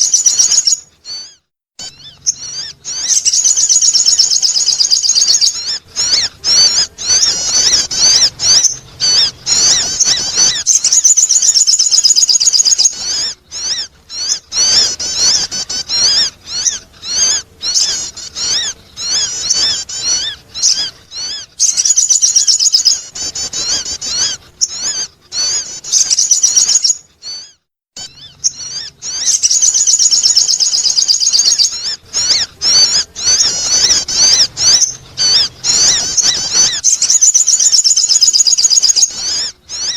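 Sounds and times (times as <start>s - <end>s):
bird chirps and trills: 0.0s - 39.9s.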